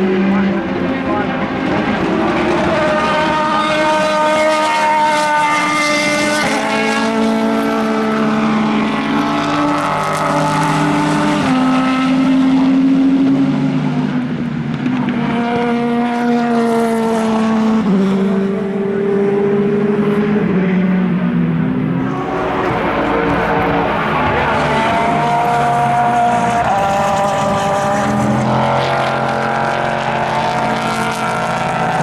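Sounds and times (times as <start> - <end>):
racing car engines running hard: 0.0 - 32.0.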